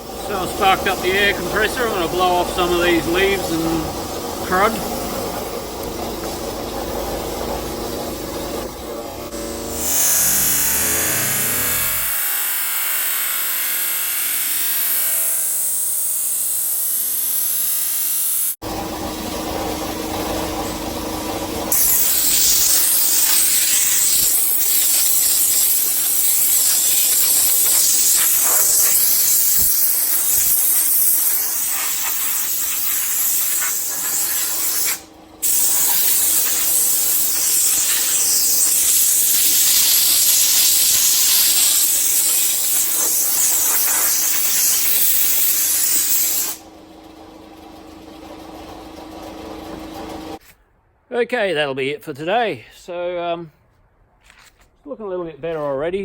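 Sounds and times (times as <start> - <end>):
air compressor humming: 0.0 - 50.4
air blow gun hissing: 9.3 - 18.6, 21.7 - 46.6.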